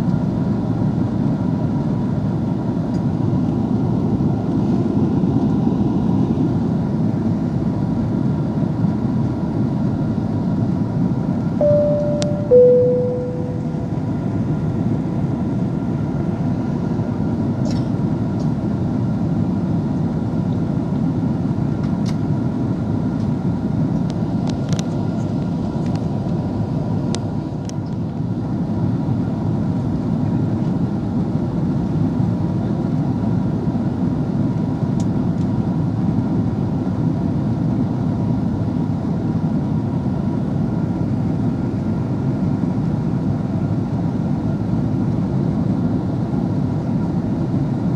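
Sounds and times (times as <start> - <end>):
airliner cabin engine rumble: 0.0 - 47.9
faint steady tones: 11.6 - 14.0.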